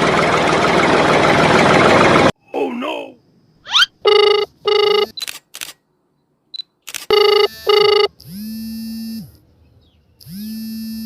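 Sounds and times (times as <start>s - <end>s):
telephone ringing: 4.1s - 5.2s, 7.1s - 8.2s.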